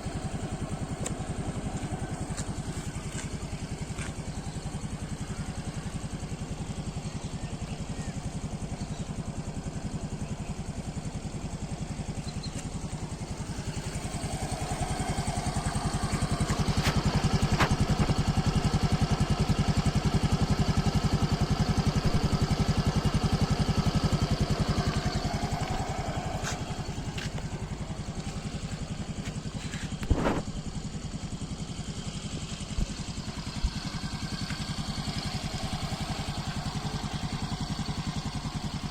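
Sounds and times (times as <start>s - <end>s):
scooter engine idling and revving: 0.0s - 38.9s.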